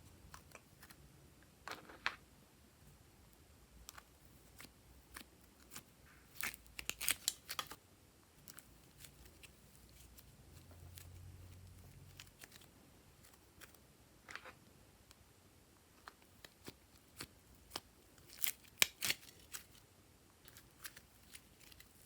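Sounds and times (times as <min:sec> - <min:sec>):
slime crackling and clicking: 0:06.4 - 0:07.8.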